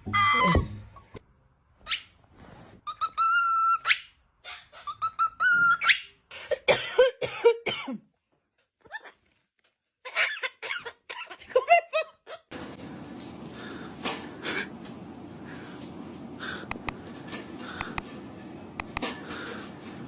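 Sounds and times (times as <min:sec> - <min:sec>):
raspy cough-like parrot sounds: 0:06.5 - 0:08.1.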